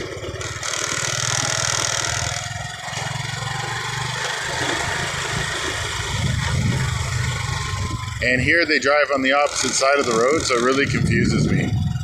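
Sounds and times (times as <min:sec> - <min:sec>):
motor scooter engine drone: 0:00.0 - 0:12.0
road noise: 0:00.0 - 0:12.0
rushing wind: 0:05.1 - 0:12.0.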